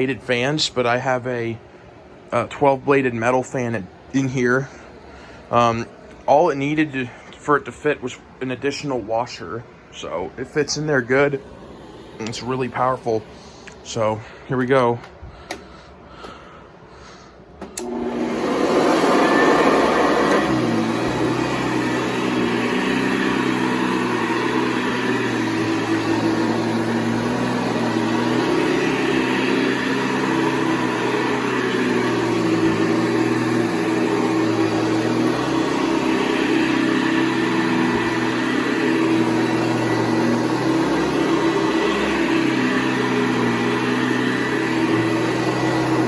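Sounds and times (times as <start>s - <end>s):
upright vacuum cleaner running: 10.0s - 16.4s, 17.5s - 46.0s.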